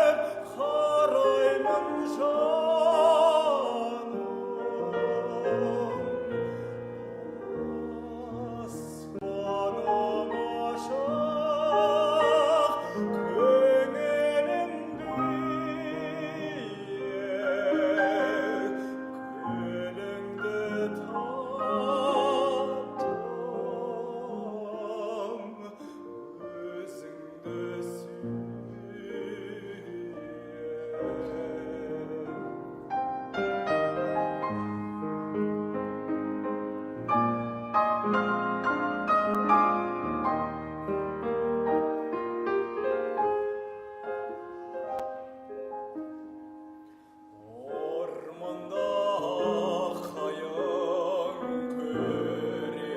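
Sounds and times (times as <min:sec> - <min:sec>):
operatic solo singing: 0:00.0 - 0:32.8, 0:47.4 - 0:52.9
piano: 0:00.0 - 0:52.9.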